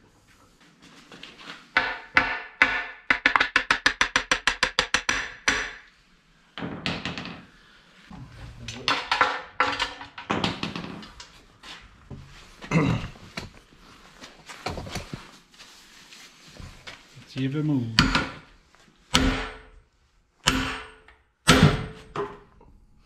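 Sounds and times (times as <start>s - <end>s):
hammer striking metal: 1.8s - 5.9s, 18.0s - 18.5s, 19.1s - 19.8s, 20.4s - 22.4s.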